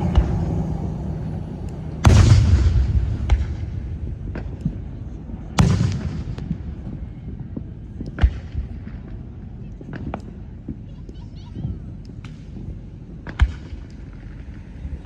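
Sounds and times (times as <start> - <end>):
firework boom: 0.0 - 7.1.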